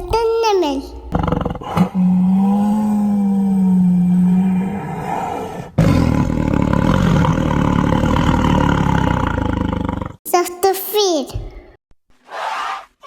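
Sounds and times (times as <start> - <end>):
tiger roaring: 1.1 - 10.2.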